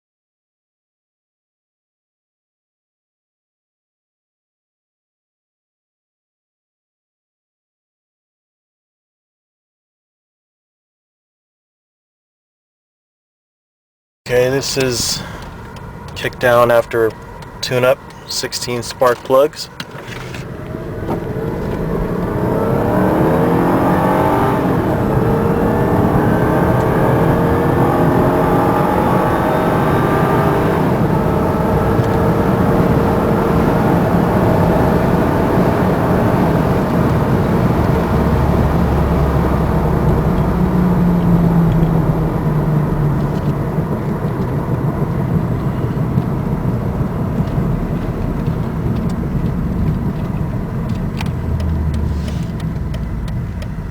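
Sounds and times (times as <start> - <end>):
car engine revving under acceleration: 14.3 - 53.9
road and tyre noise: 14.3 - 53.9
gearbox upshifting: 30.9 - 53.9.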